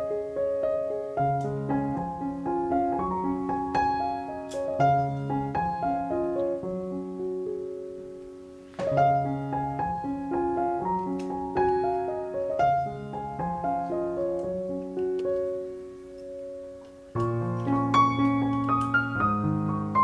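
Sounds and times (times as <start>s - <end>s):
calm piano music: 0.0s - 20.0s.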